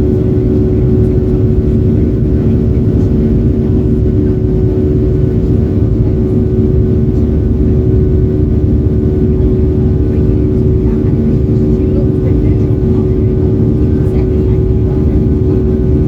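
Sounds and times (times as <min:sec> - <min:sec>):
jet engine roar and airflow: 0:00.0 - 0:16.0
low even cabin hum: 0:00.0 - 0:16.0.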